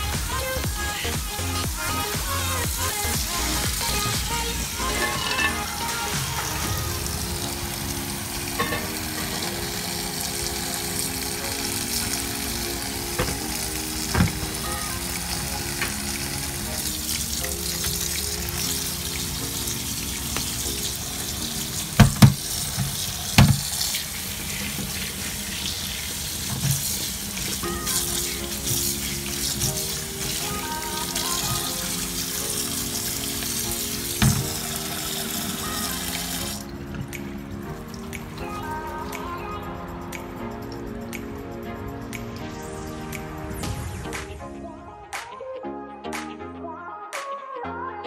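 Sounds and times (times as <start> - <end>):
tap water running into colander: 0.0 - 39.0.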